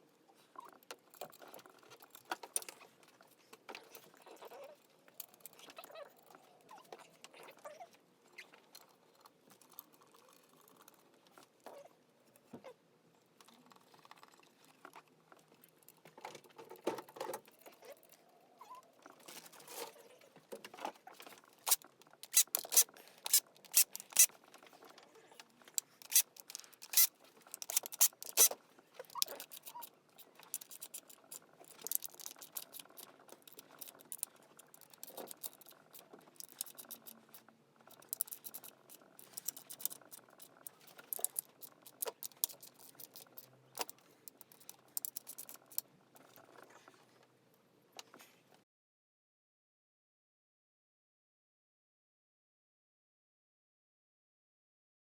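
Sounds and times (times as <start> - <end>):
tools and metal parts clinking: 21.3 - 24.8, 25.7 - 29.8.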